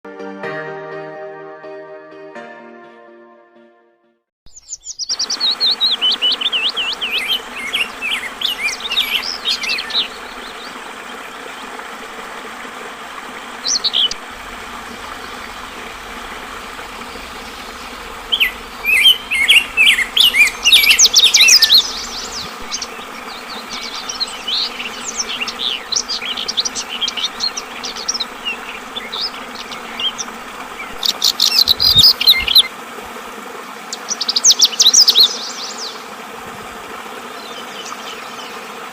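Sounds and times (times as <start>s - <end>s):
bird chattering song: 4.5s - 10.8s, 15.1s - 32.7s
water trickling: 5.1s - 33.5s.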